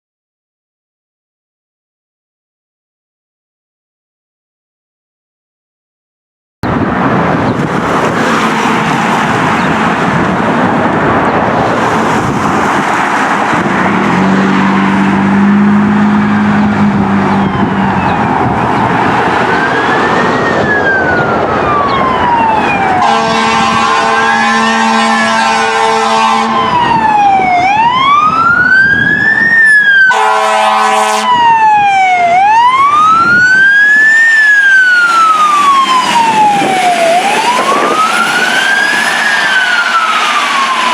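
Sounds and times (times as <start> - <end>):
road noise: 6.6 - 40.9
siren wailing: 14.1 - 40.9
air horn blasts: 23.0 - 26.8, 30.1 - 31.4.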